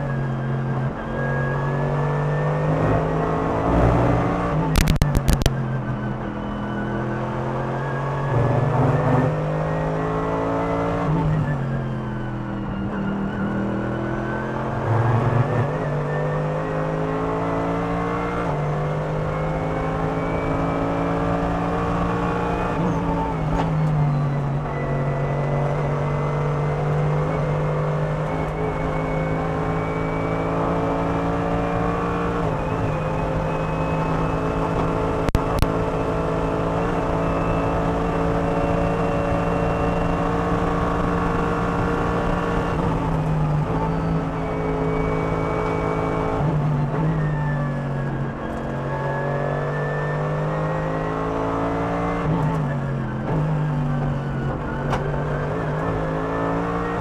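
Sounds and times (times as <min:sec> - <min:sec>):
race car engine at high revs: 0:00.0 - 0:57.0
sharp clicks: 0:04.8 - 0:05.5, 0:35.3 - 0:35.7.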